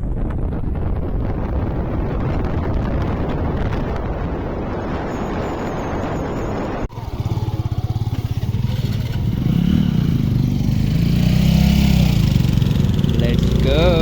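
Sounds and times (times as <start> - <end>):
motorcycle engine running: 6.5 - 14.0.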